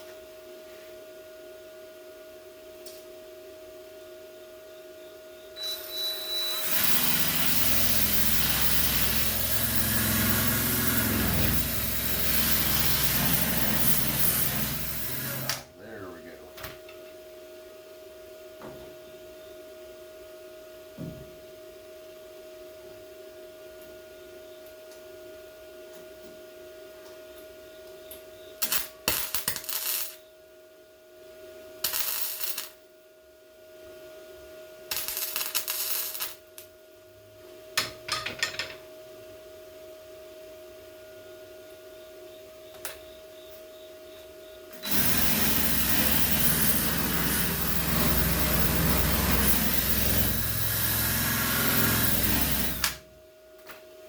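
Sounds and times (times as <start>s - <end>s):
electrical hum: 3.9s - 17.1s, 40.7s - 53.4s
metalworking noise: 5.6s - 15.6s, 44.8s - 53.0s
welding bursts: 6.5s - 15.6s, 28.6s - 30.2s, 31.8s - 32.8s, 34.9s - 36.6s, 44.8s - 53.0s.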